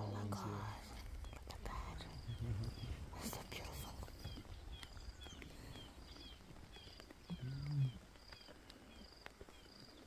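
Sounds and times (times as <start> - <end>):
lion calling: 6.2 - 8.2.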